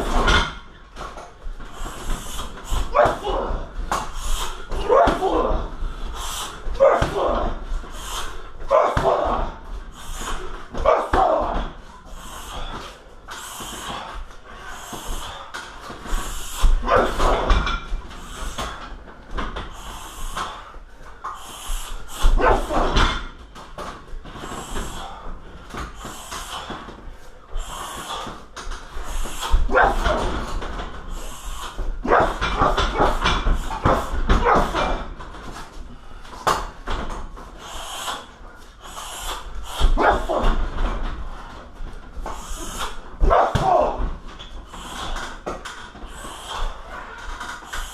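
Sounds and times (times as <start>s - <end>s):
sharp hissing exhales: 1.7s - 3.0s, 3.9s - 4.8s, 5.8s - 6.8s, 7.8s - 8.6s, 9.9s - 10.6s, 12.0s - 17.6s, 19.6s - 23.2s, 24.3s - 35.0s, 37.5s - 40.8s, 42.2s - 43.0s, 44.6s - 47.9s.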